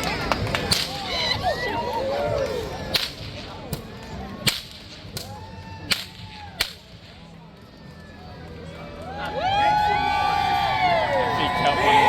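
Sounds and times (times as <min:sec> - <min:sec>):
faint crowd voices: 0:00.0 - 0:12.0
whip cracking: 0:00.1 - 0:01.2, 0:02.9 - 0:07.1.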